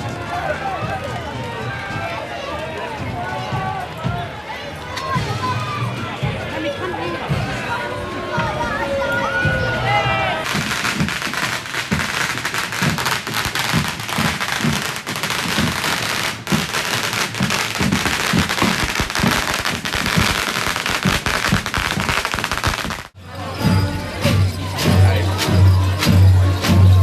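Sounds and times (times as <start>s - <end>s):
firecrackers crackling: 10.4s - 23.2s.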